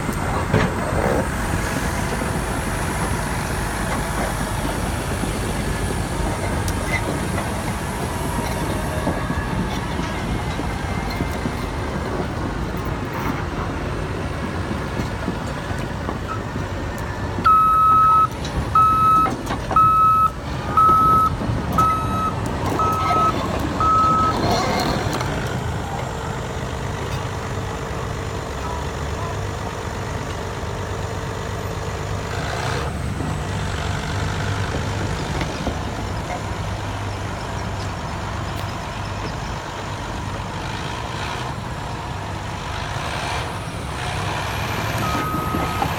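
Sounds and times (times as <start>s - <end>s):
bulldozer diesel engine running: 0.0s - 45.9s
backup alarm beeping: 17.4s - 24.4s.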